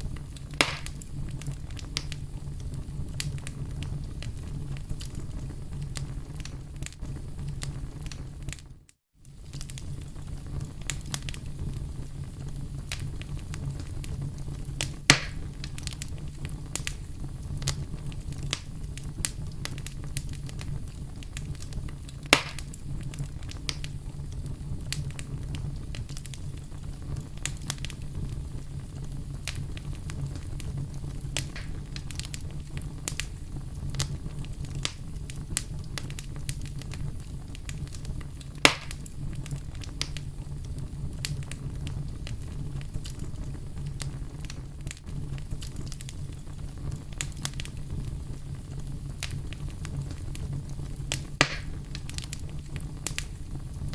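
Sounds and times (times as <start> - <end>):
sharp pops from fire: 0.0 - 53.9
wood fire crackling: 0.0 - 53.9.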